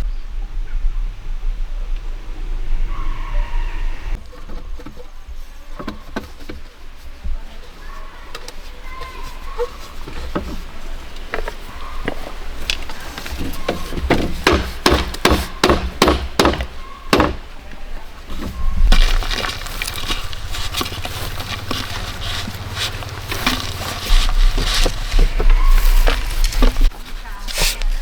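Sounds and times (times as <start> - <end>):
cracking and rustling: 4.2 - 15.6, 16.6 - 28.0
sharp strikes on bamboo: 14.4 - 17.5.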